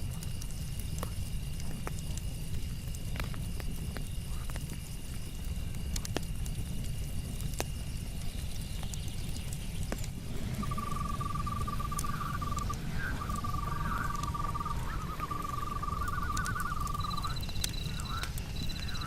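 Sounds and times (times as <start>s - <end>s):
burning wood popping: 0.0s - 19.0s
campfire crackling: 0.0s - 19.0s
high insect chirr: 10.5s - 19.0s
rapid trilling night call: 10.5s - 19.0s.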